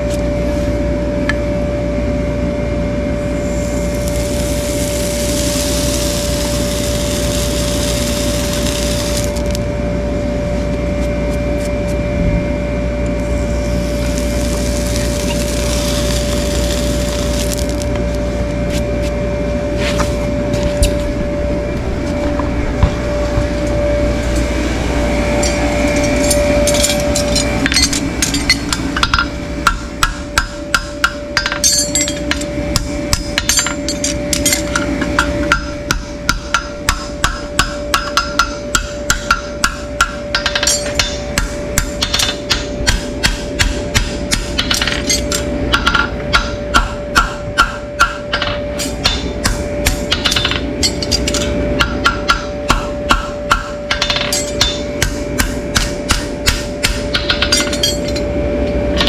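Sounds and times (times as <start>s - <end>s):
steady machine hum: 0.0s - 59.0s
hammer tapping with metallic ring: 27.7s - 32.4s.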